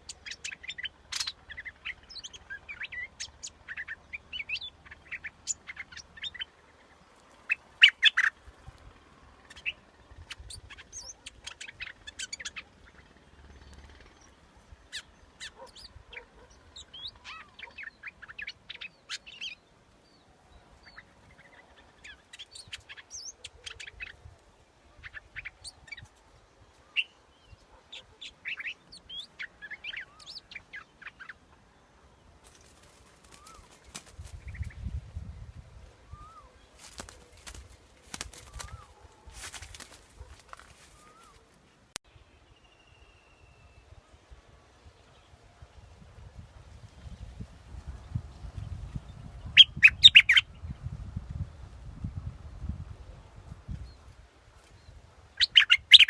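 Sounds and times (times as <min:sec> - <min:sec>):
bird calling with sharp chirps: 0:00.0 - 0:08.4, 0:32.4 - 0:34.7, 0:36.1 - 0:41.6, 0:49.6 - 0:50.4, 0:55.4 - 0:56.0.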